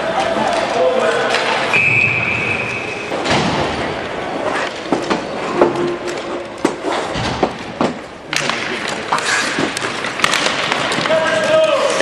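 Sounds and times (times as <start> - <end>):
referee's whistle: 1.7 - 3.1.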